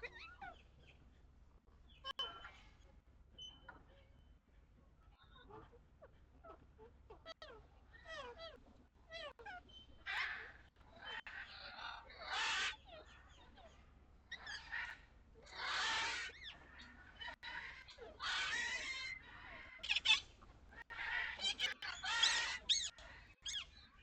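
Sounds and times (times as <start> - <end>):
poultry harsh calls: 9.2 - 13.4, 14.3 - 23.9.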